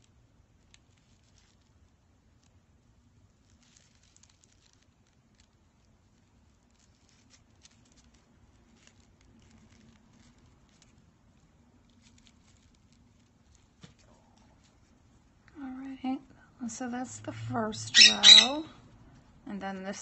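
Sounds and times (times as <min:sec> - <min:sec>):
hands rustling braid and beads: 0:00.0 - 0:15.4
faint low hum: 0:00.0 - 0:20.0.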